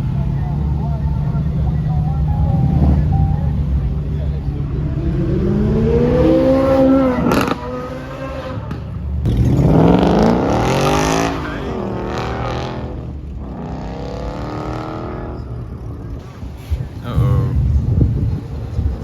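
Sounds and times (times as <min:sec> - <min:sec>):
car engine revving hard: 0:04.7 - 0:15.4.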